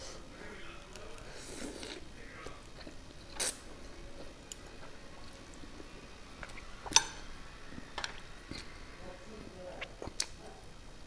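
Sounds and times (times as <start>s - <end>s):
quiet chewing: 0.0s - 11.0s
noodle slurp: 1.2s - 7.0s.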